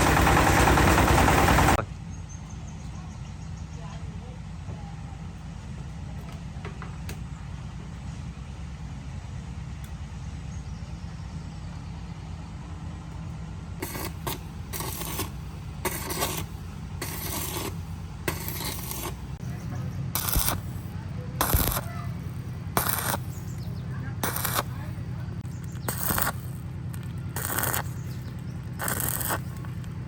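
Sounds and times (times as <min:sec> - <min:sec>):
low machine hum: 0:00.0 - 0:30.0
loud scraping bursts: 0:13.8 - 0:30.0.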